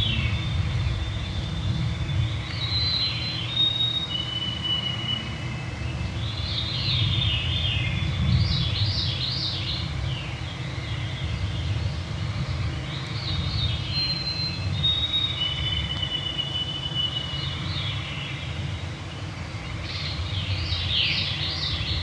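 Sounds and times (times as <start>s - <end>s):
low rumble: 0.0s - 3.3s
long whistled bird notes: 0.0s - 11.8s, 12.8s - 18.8s
songbirds singing: 0.0s - 22.0s.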